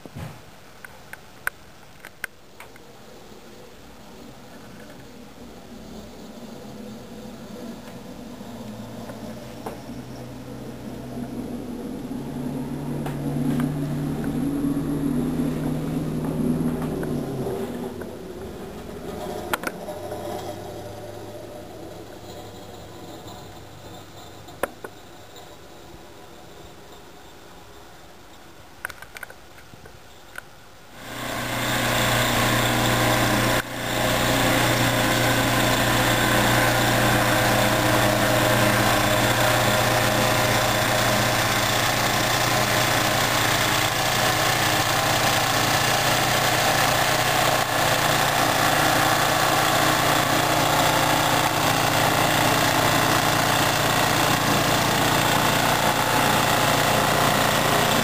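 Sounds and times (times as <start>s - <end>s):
small engine running: 7.4s - 24.7s, 31.0s - 58.0s.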